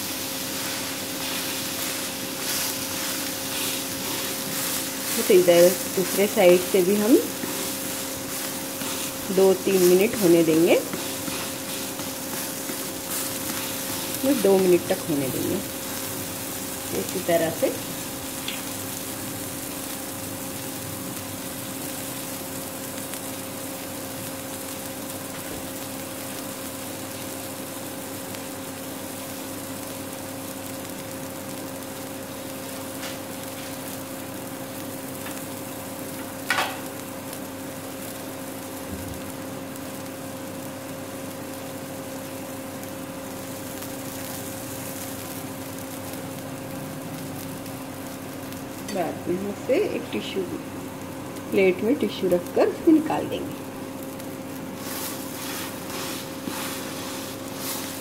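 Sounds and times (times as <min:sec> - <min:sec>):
constant hum: 0:00.0 - 0:23.8, 0:41.7 - 0:58.0
pancake sizzling in a pan: 0:00.0 - 0:58.0.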